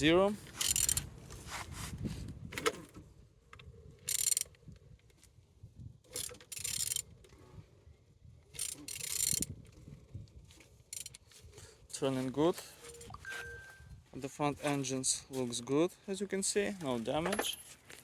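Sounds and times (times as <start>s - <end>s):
engine turned over by hand scraping: 0.4s - 3.0s.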